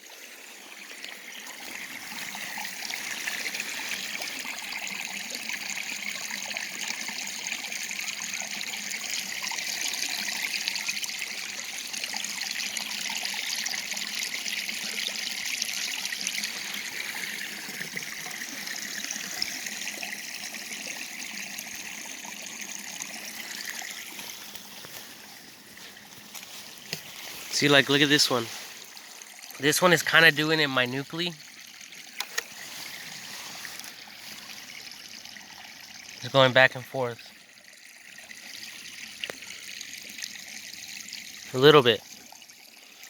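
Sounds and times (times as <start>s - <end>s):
water trickling: 0.0s - 43.0s.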